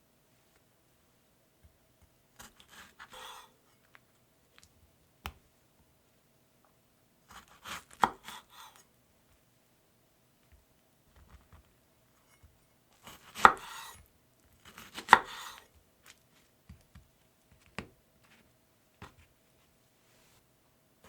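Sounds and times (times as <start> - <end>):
knife scraping board: 2.4 - 3.6, 7.3 - 8.8, 12.3 - 14.0, 14.6 - 15.7.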